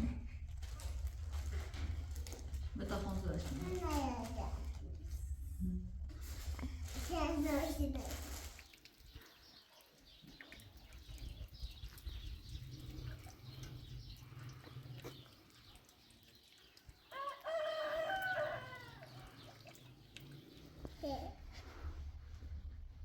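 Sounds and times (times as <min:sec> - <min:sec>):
rooster crowing: 0:17.1 - 0:19.2.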